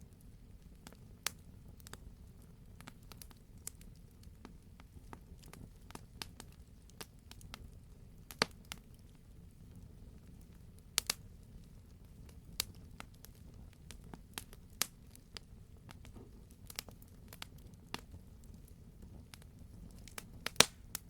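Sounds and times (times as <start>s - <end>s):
low rumble of burning: 0.0s - 21.0s
wood fire crackling: 0.0s - 21.0s
sharp pops and snaps: 8.3s - 9.0s, 11.0s - 11.2s, 12.6s - 15.2s, 19.3s - 21.0s.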